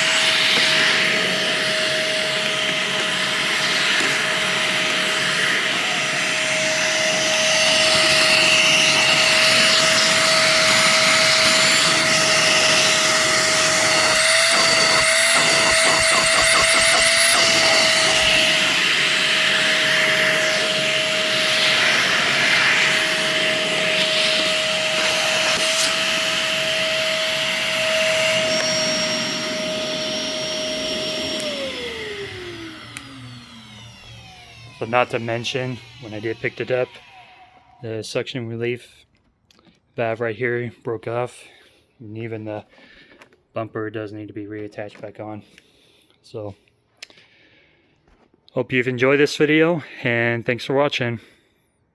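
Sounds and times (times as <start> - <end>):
vacuum cleaner motor whine: 0.0 - 37.9.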